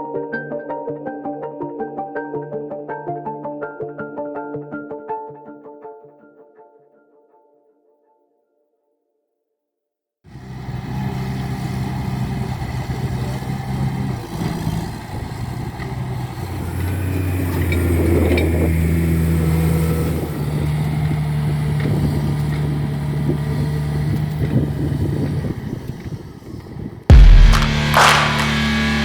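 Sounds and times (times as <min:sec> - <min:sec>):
diesel engine running: 0:10.3 - 0:29.0.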